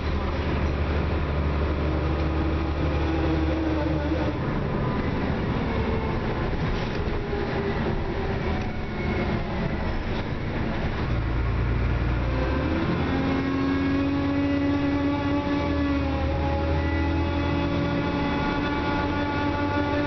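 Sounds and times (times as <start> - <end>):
bus engine droning: 0.0 - 20.0.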